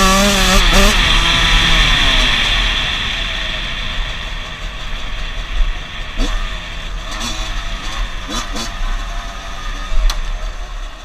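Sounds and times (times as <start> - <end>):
dirt bike engine revving: 0.0 - 3.8, 6.1 - 10.6.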